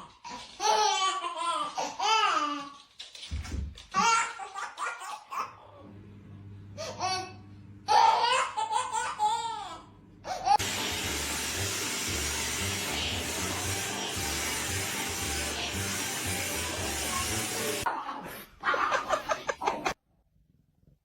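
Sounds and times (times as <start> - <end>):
person laughing: 18.0 - 20.0.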